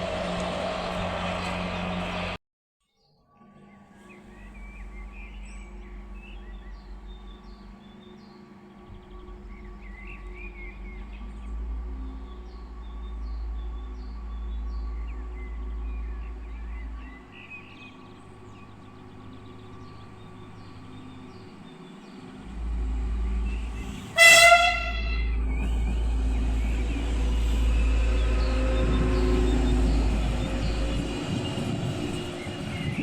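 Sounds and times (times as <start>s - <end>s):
birds chirping: 3.6s - 33.0s
low rumble: 4.1s - 24.2s, 24.8s - 33.0s
train horn blast: 23.4s - 25.6s.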